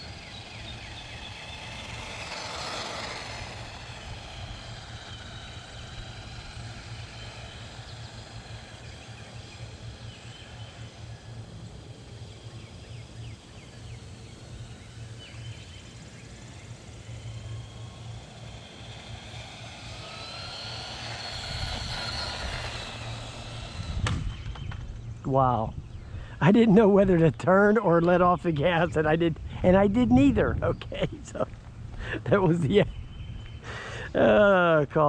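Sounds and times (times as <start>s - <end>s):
toy truck motor whining: 0.0s - 12.8s, 13.4s - 24.7s.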